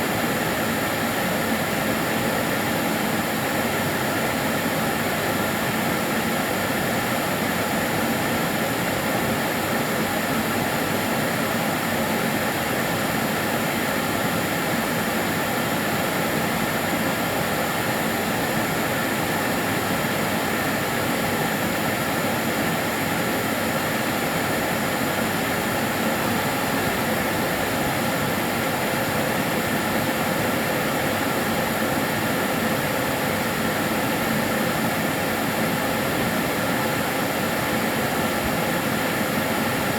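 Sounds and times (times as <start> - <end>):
vacuum cleaner running: 16.4 - 39.9.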